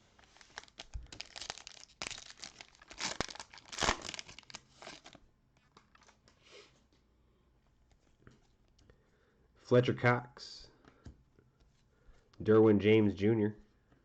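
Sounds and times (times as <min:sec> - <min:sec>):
plastic wrapper crinkling and tearing: 0:00.0 - 0:06.2.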